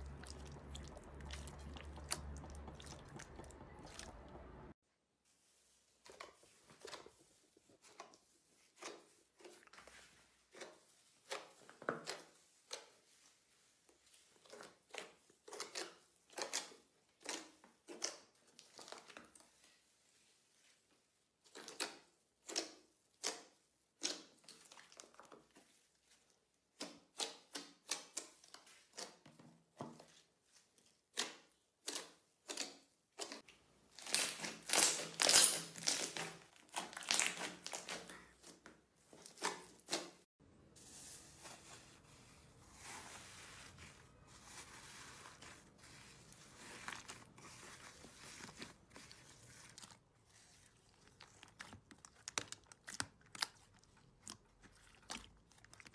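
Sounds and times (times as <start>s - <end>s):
slime squishing and crackling: 31.8s - 38.5s, 44.3s - 55.9s.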